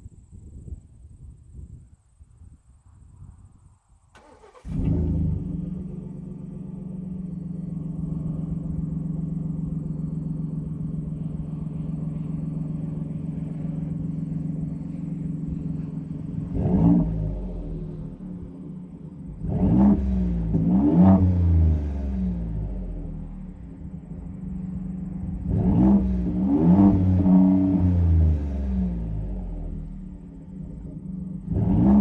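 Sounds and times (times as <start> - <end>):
engine revving blips: 4.2 - 23.6, 24.5 - 32.0
truck engine idling: 5.6 - 20.5, 22.3 - 26.2, 28.8 - 31.5.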